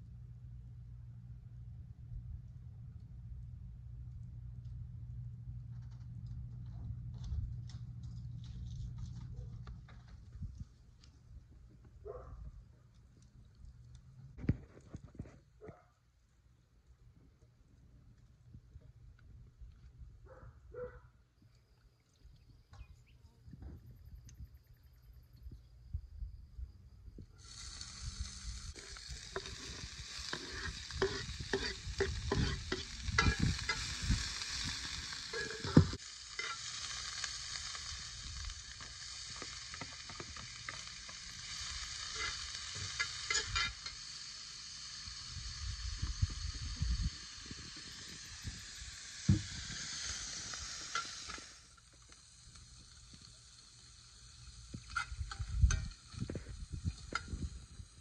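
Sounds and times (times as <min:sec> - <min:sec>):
food sizzling in a skillet: 0:27.4 - 0:58.0
metal spoon scraping a pan: 0:28.8 - 0:37.2, 0:42.0 - 0:44.0.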